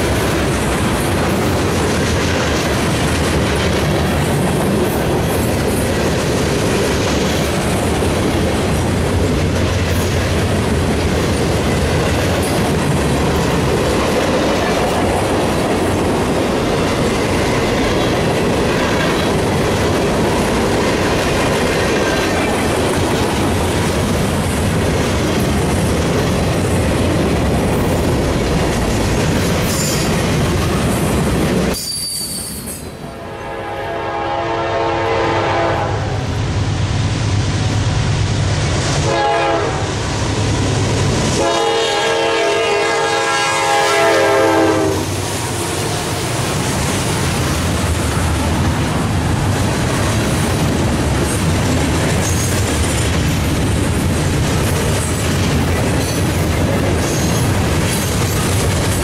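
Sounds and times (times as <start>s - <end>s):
freight train wheels on rail: 0.0s - 59.0s
locomotive air horn: 33.1s - 36.3s, 39.0s - 40.0s, 41.4s - 45.2s.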